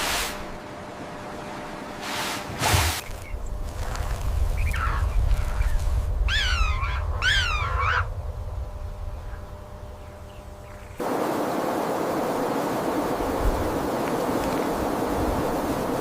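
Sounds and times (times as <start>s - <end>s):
animal calling harshly: 6.3s - 8.1s.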